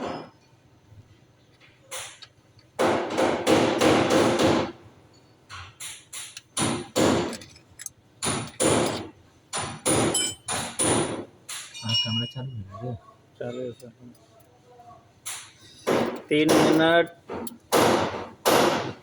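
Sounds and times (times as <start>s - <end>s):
hammer strikes with ringing: 9.6s - 12.5s.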